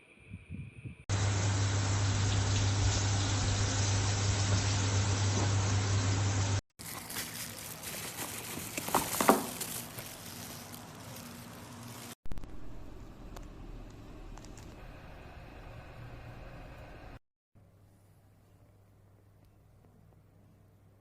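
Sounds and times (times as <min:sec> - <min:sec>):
electric kettle heating water: 0:01.1 - 0:06.6
low electrical hum: 0:01.1 - 0:06.6, 0:09.6 - 0:21.0.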